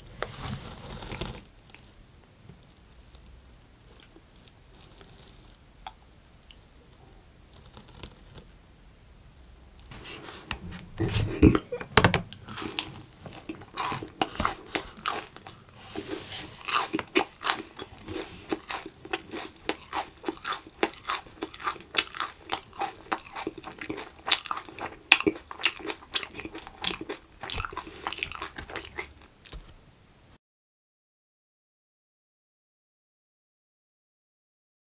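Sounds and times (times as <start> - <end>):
person chewing crunchy candy: 9.9 - 29.7.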